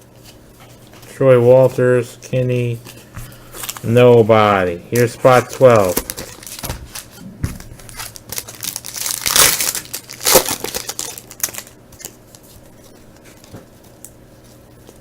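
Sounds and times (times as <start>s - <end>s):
wrapper crinkling and tearing: 3.6s - 3.9s, 5.0s - 15.0s.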